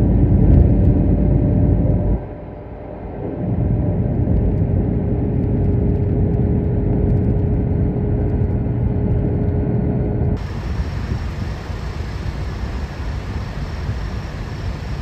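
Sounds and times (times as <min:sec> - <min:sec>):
faint constant hum: 0:08.6 - 0:15.0
engine rumbling: 0:10.4 - 0:15.0.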